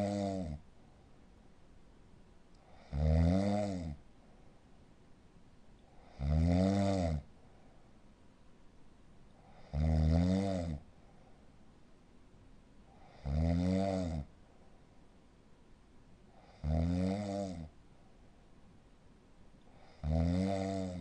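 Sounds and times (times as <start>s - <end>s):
dog snoring: 0.0s - 0.6s, 2.6s - 4.0s, 5.9s - 7.3s, 9.4s - 10.9s, 12.9s - 14.3s, 16.3s - 17.7s, 19.7s - 21.0s.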